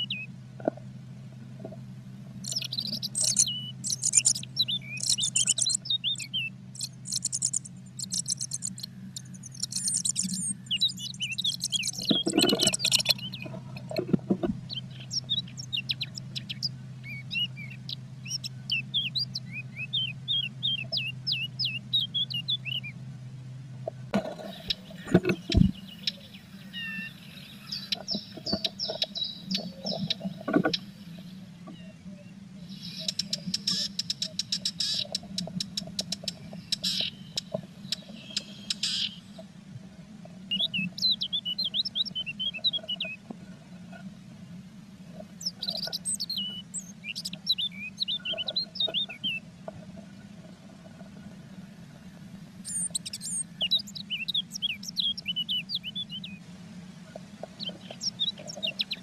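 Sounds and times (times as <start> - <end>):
low electrical hum: 0.0 - 59.0
songbirds chirping and trilling: 0.0 - 59.0
dull knocks: 25.1 - 25.8.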